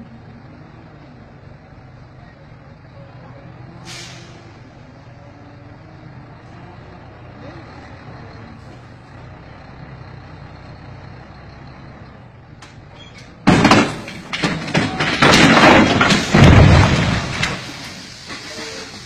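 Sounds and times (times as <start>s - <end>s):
truck engine running: 0.0s - 19.0s
heavy crashing and banging: 13.1s - 19.0s.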